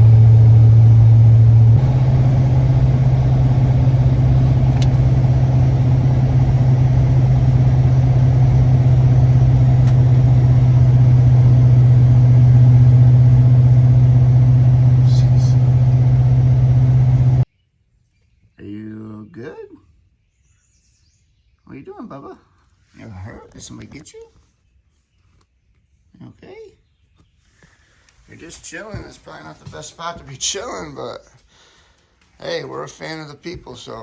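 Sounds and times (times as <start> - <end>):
truck engine and road drone: 0.0 - 17.5.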